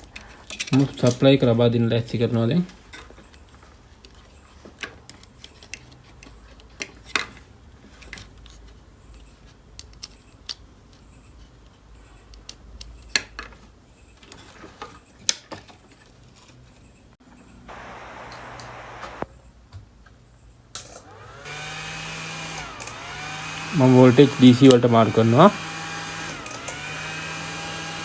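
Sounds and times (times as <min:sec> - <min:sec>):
faint low hum: 0:17.6 - 0:19.5.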